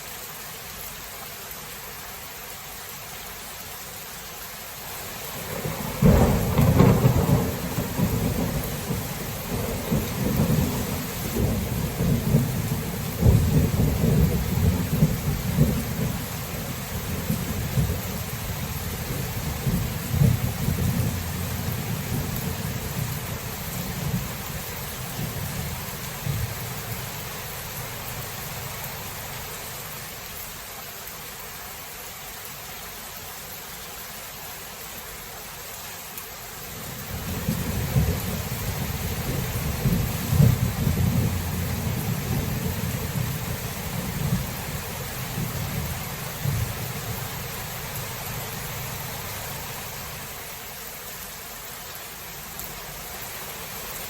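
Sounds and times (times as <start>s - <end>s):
rain hiss: 0.0s - 54.0s
thunder clap and rumbling: 5.4s - 29.2s, 37.1s - 47.9s.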